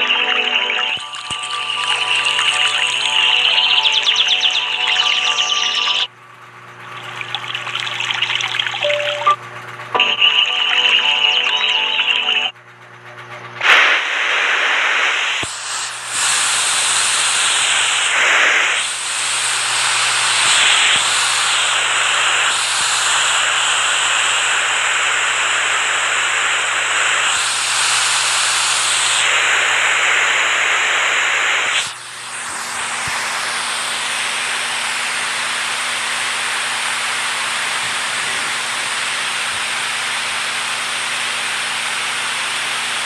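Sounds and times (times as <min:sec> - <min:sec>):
rushing water hiss: 0:00.0 - 0:06.1.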